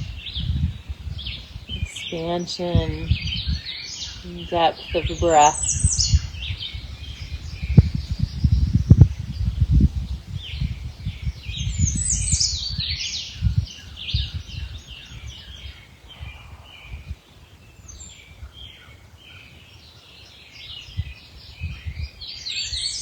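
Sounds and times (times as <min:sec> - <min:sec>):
songbirds singing and chirping: 0:00.0 - 0:23.0.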